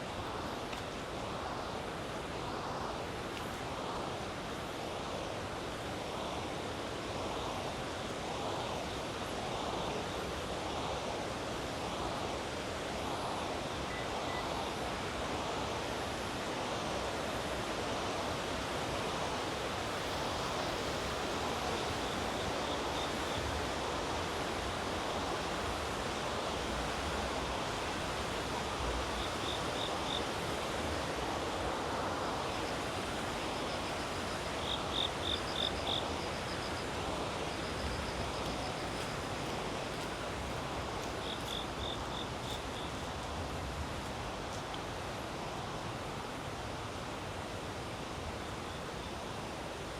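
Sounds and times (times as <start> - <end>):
river water rushing: 14.4 - 48.6.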